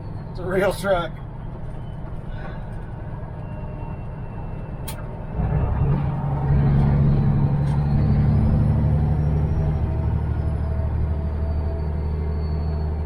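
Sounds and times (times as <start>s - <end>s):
truck diesel engine revving: 5.3s - 13.0s.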